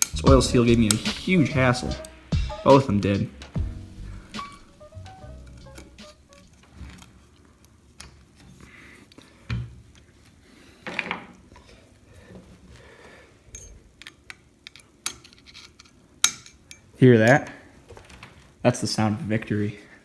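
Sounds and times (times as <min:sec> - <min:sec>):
heavy knock: 0:00.1 - 0:01.7.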